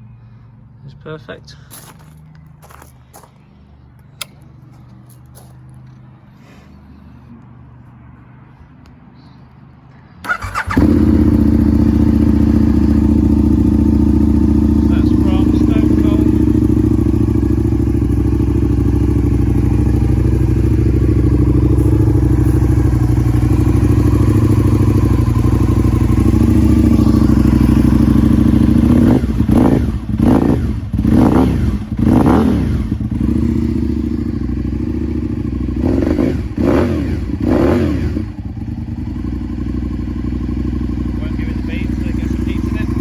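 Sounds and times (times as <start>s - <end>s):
motorcycle engine idling: 10.2s - 43.0s
motorcycle throttle blips: 10.2s - 43.0s.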